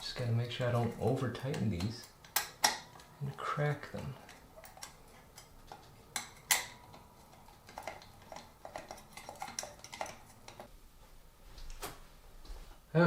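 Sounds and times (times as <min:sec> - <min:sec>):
glass shades clinking on metal: 0:00.6 - 0:10.7.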